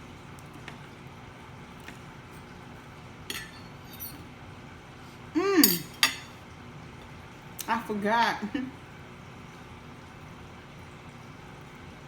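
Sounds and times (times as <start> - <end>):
knife and fork clinking on plate: 3.3 - 4.3, 5.6 - 6.4.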